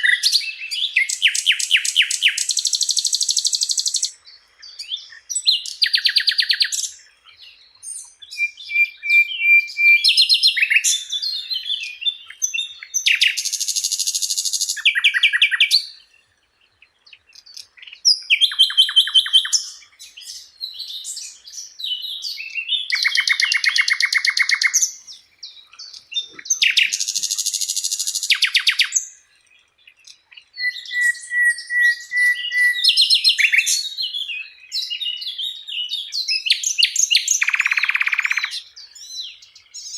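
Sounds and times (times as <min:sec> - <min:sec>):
bird singing buzzy trills: 0:00.0 - 0:39.9
bird whistled notes: 0:07.8 - 0:15.9, 0:30.6 - 0:39.2.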